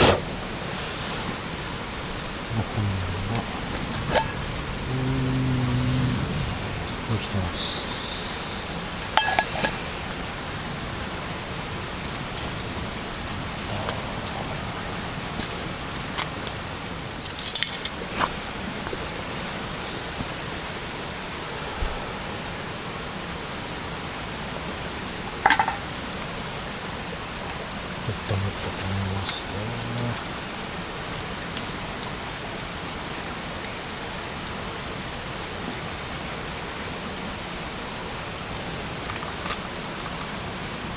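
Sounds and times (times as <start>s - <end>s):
steady rain hiss: 0.0s - 40.9s
cutlery clinking against a dish: 9.2s - 10.0s, 17.2s - 18.3s, 25.5s - 25.9s.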